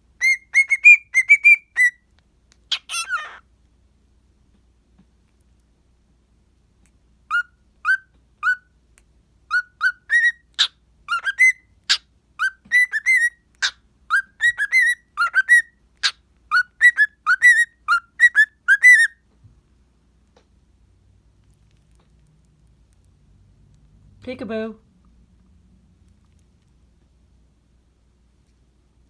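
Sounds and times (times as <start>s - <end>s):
cockatiel whistling: 0.2s - 2.0s, 7.3s - 8.7s, 9.5s - 19.2s.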